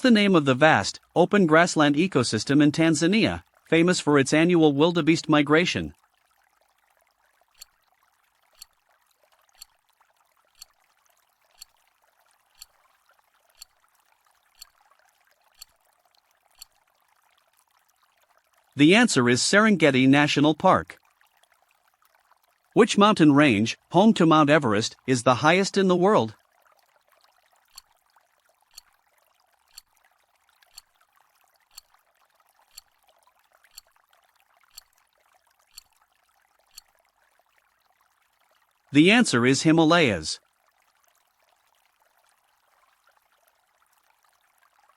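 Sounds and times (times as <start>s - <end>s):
countdown timer ticks: 8.6s - 8.8s, 9.6s - 9.8s, 10.6s - 10.8s, 11.6s - 11.8s, 12.6s - 12.8s, 13.6s - 13.8s, 14.6s - 14.8s, 16.6s - 16.8s, 29.7s - 29.9s, 30.7s - 30.9s, 31.7s - 31.9s, 33.7s - 33.9s, 35.7s - 35.9s.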